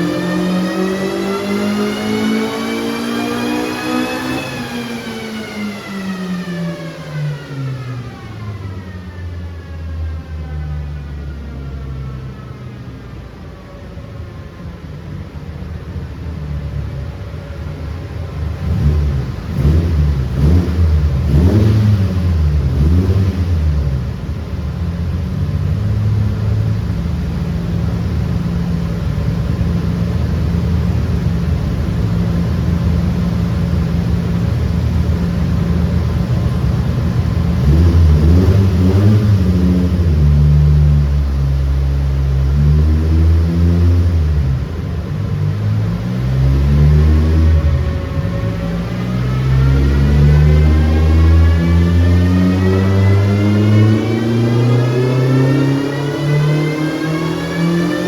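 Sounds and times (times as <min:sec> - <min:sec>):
car engine revving: 0:00.0 - 0:13.5, 0:14.3 - 0:58.0.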